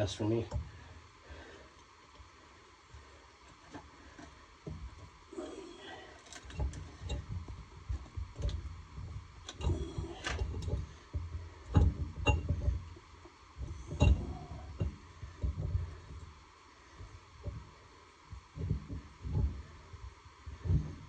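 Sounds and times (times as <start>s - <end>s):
metal knocks and scrapes: 6.4s - 16.2s.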